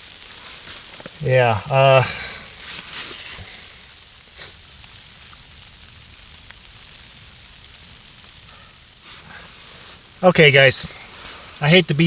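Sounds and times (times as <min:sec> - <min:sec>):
snow pattering: 0:00.0 - 0:12.0
faint ticks: 0:02.0 - 0:11.6.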